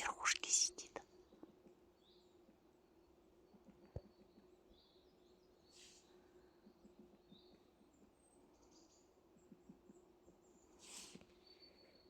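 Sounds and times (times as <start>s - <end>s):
faint high bird chirps: 3.0s - 12.0s.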